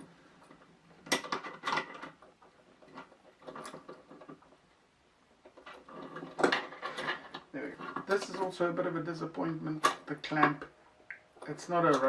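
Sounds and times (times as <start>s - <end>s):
metal parts clicking and rattling: 0.4s - 4.6s, 5.4s - 8.6s.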